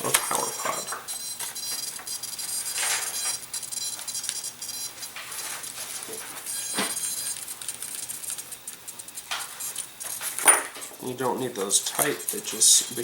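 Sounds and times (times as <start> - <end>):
screwdriver clicking and scraping: 0.0 - 10.9, 11.6 - 13.0.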